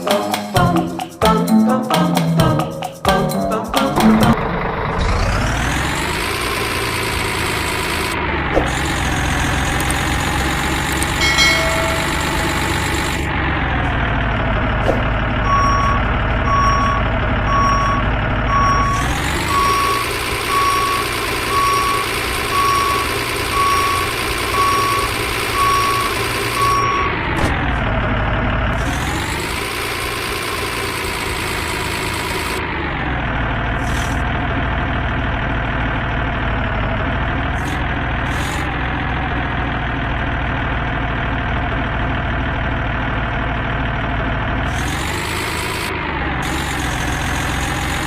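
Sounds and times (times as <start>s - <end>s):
truck engine revving: 3.7s - 48.0s
reversing alarm beeping: 15.4s - 27.2s.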